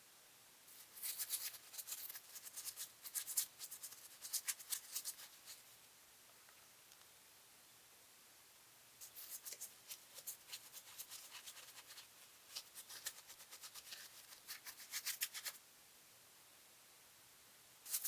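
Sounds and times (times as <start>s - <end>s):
scratchy rubbing strokes: 0.7s - 5.8s, 9.0s - 15.6s.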